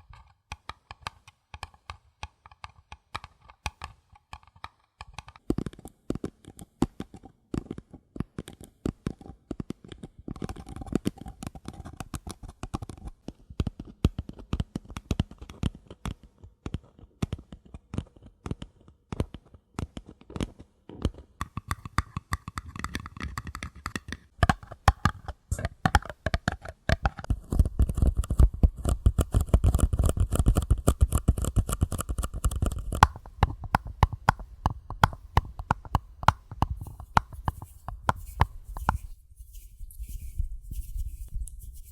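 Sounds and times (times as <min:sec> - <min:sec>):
hand tapping paper cups: 0:21.1 - 0:41.9.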